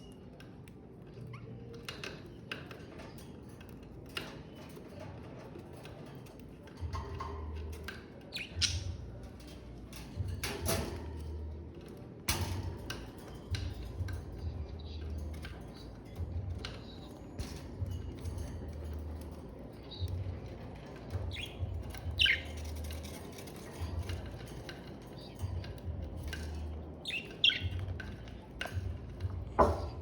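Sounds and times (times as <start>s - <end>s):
budgerigars chirping and squawking: 6.9s - 9.1s, 19.2s - 28.4s.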